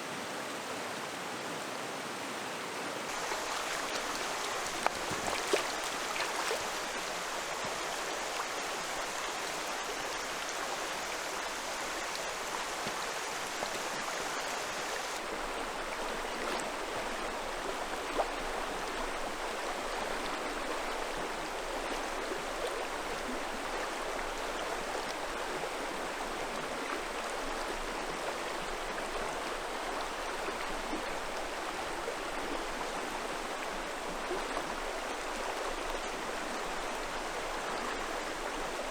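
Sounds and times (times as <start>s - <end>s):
fast-flowing river rushing: 3.1s - 25.5s.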